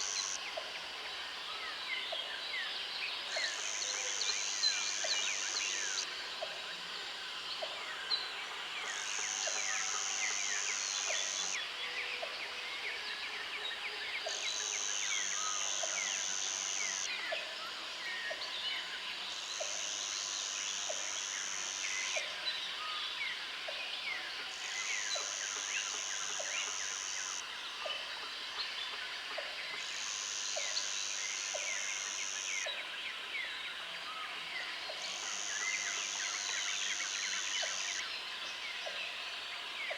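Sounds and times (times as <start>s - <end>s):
high insect buzz: 0.0s - 0.4s, 14.7s - 17.1s, 24.6s - 27.4s, 29.8s - 32.6s.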